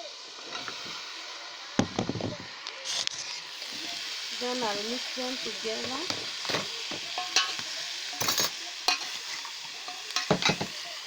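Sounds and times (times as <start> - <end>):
vegetables sizzling in hot oil: 0.0 - 11.0
utensil scraping and knocking pot: 5.7 - 10.8.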